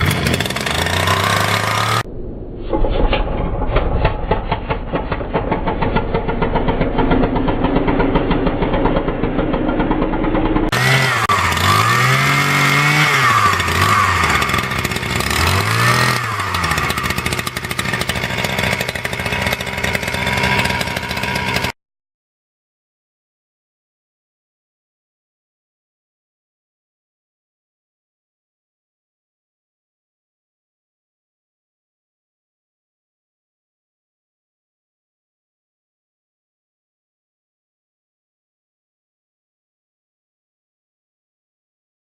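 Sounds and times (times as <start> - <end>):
small petrol engine running: 0.0 - 2.0, 4.3 - 21.8.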